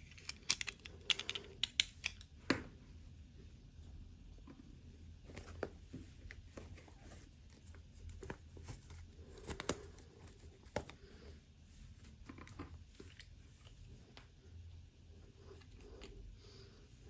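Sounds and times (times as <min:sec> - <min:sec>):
plastic toy pieces clicking: 0:00.1 - 0:02.3.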